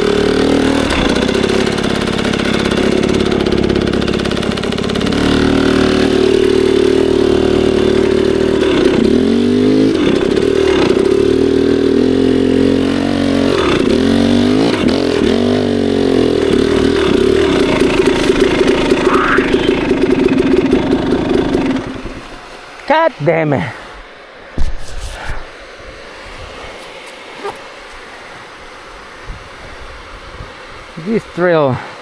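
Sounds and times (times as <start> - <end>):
dirt bike engine revving: 0.0 - 23.8.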